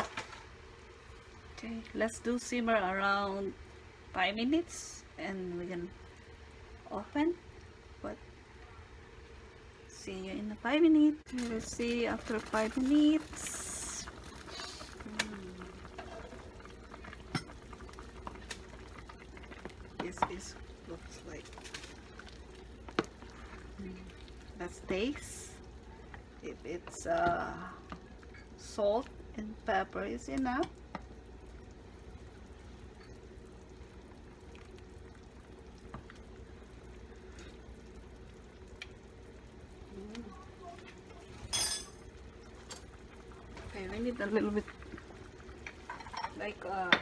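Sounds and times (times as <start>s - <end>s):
soup simmering and bubbling: 11.3s - 47.0s.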